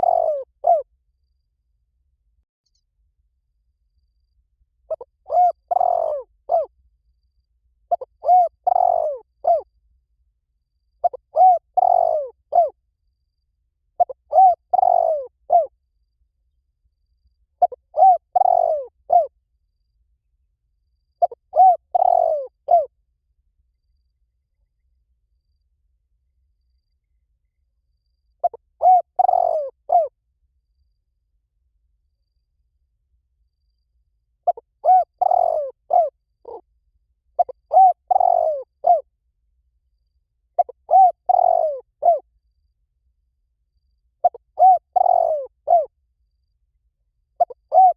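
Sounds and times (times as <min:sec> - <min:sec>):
dove cooing: 0:00.0 - 0:00.9, 0:04.9 - 0:06.7, 0:07.9 - 0:09.6, 0:11.0 - 0:12.8, 0:14.0 - 0:15.7, 0:17.6 - 0:19.3, 0:21.2 - 0:22.9, 0:28.4 - 0:30.1, 0:34.5 - 0:36.6, 0:37.4 - 0:39.0, 0:40.6 - 0:42.2, 0:44.2 - 0:45.9, 0:47.4 - 0:47.9.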